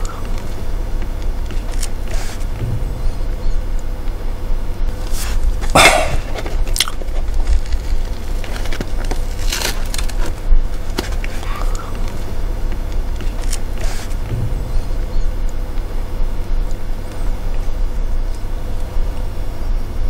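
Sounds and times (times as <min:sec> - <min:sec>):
low hum: 0:00.0 - 0:20.0
man crunching food: 0:05.7 - 0:12.3.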